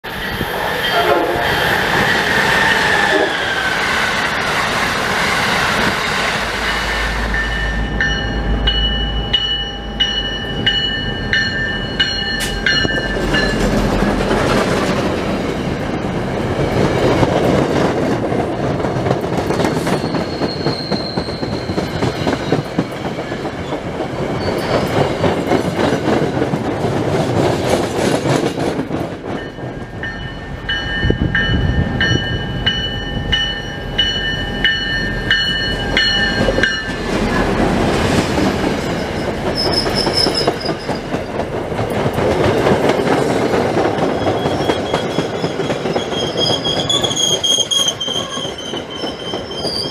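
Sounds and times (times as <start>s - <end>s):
crossing bell ringing: 0.2s - 2.4s, 6.6s - 14.0s, 29.3s - 37.6s
train wheels clattering: 9.4s - 49.9s.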